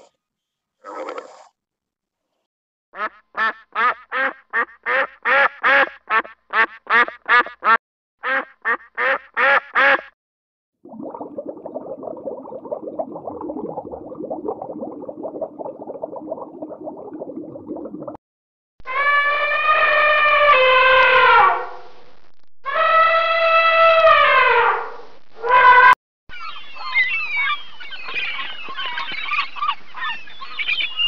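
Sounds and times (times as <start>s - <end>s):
underwater rushing noise: 10.8s - 18.2s.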